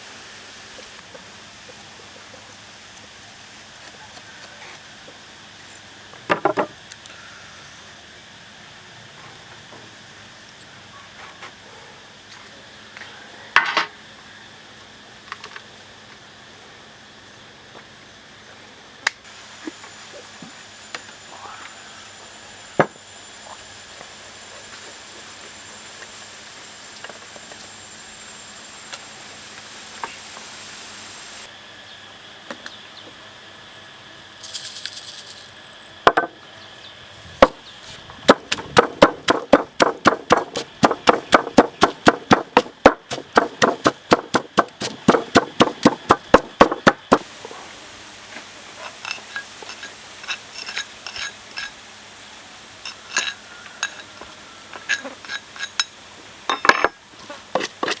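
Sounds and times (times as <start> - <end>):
quick knocks striking food by hand: 38.3 - 47.2
utensils and dishes clinking: 48.8 - 51.8, 52.8 - 57.0.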